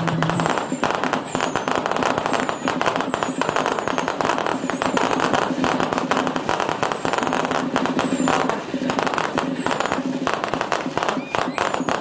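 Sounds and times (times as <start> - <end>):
fireworks crackling and banging: 0.0 - 12.0
faint falling whistles: 0.4 - 5.1, 6.9 - 8.5, 11.0 - 12.0.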